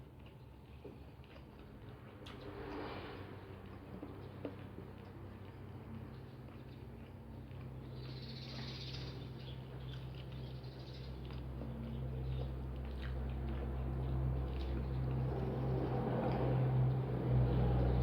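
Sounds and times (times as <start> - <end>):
person chewing: 12.8 - 13.8.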